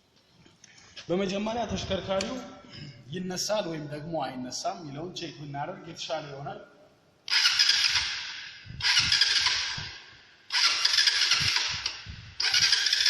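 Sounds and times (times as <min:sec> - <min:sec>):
motorcycle engine cranking: 0:07.3 - 0:13.0.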